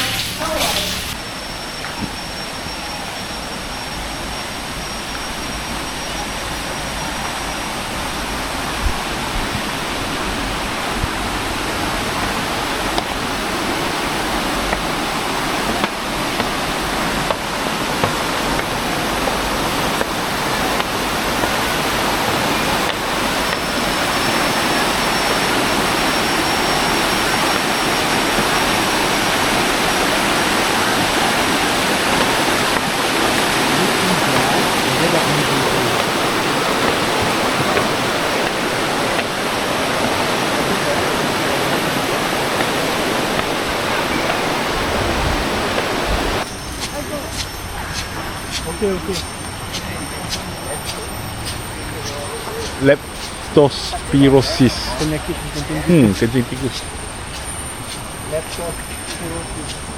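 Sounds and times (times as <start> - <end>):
river water rushing over rocks: 4.5 - 51.9.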